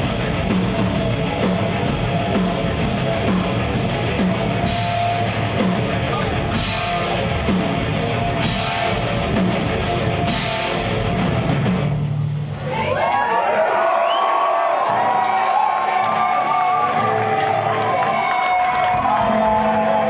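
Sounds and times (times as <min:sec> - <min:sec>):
distorted electric guitars: 0:00.0 - 0:12.7
pounding drum kit: 0:00.0 - 0:12.7, 0:14.8 - 0:20.0.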